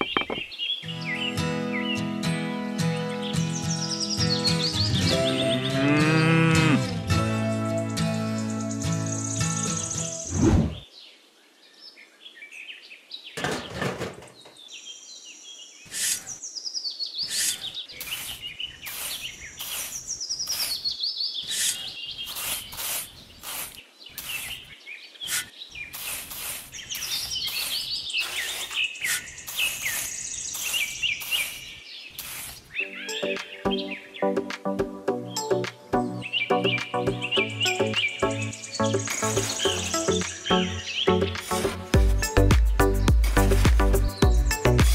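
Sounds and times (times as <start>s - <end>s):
small birds chirping: 0.0s - 7.0s, 7.6s - 13.4s, 14.2s - 44.9s
trowel scraping and tapping sand: 15.9s - 16.3s, 17.3s - 33.5s, 39.0s - 40.4s.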